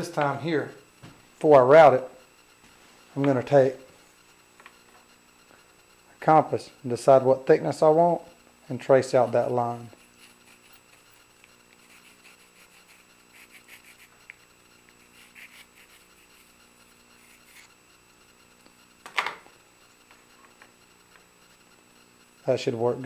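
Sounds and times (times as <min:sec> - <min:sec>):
compass scratching on wood: 0:08.8 - 0:18.4.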